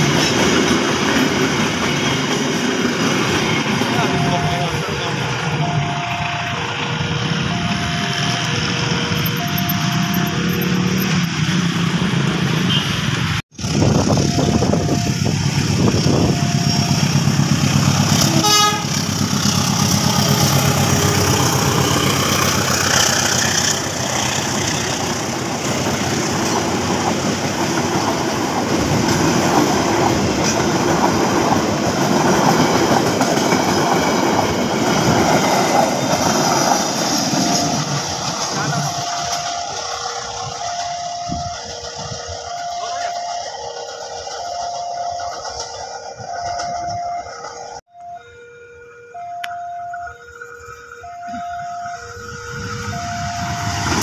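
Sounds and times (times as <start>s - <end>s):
train wheels rumbling on rails: 0.0s - 47.9s, 49.4s - 54.0s
train horn toot: 12.6s - 13.3s, 18.1s - 22.0s.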